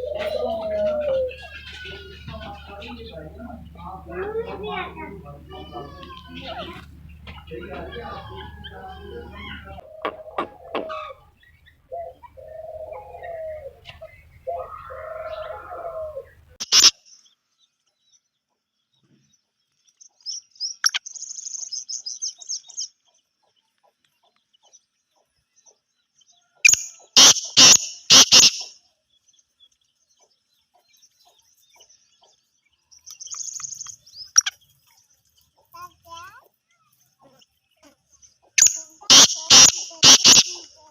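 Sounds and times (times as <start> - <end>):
bird calling long notes: 0.0 - 16.9, 38.6 - 40.9
faint bird chirps: 0.0 - 40.9.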